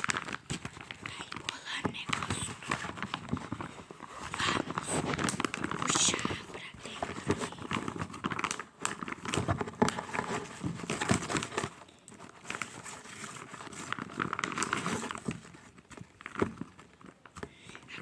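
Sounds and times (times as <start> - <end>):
plastic toy crinkling: 0.0 - 18.0.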